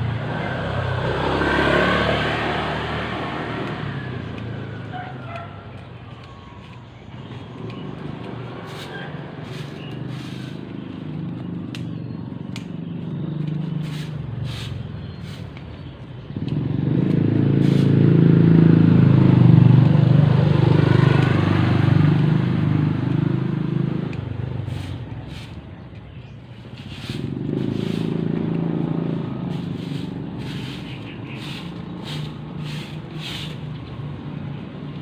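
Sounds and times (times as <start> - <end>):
vehicle engine humming: 0.0 - 35.0
sharp clicks: 11.2 - 13.6.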